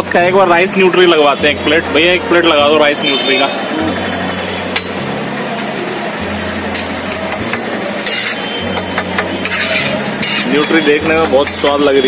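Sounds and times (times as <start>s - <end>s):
food sizzling in oil: 6.2s - 12.0s
metal spatula scraping griddle: 6.7s - 12.0s.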